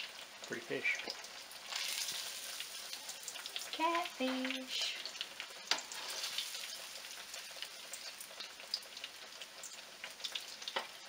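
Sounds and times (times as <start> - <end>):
fish frying in hot oil: 0.0 - 11.0.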